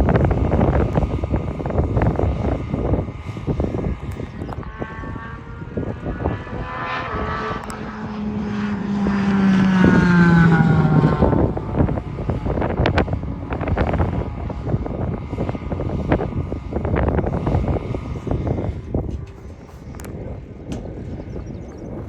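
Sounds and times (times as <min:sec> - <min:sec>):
wind buffeting microphone: 0:00.0 - 0:22.0
car passing at speed: 0:04.6 - 0:13.2.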